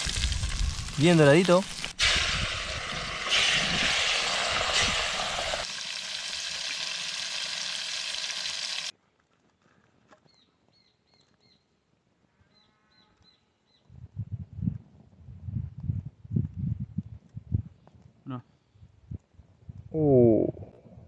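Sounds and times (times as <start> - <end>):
fish sizzling in hot oil: 0.0 - 8.9.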